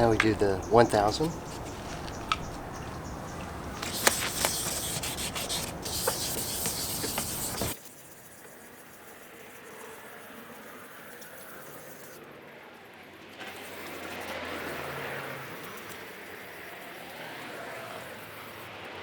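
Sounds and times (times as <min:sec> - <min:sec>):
sandpaper rubbing on plastic: 0:00.0 - 0:07.8.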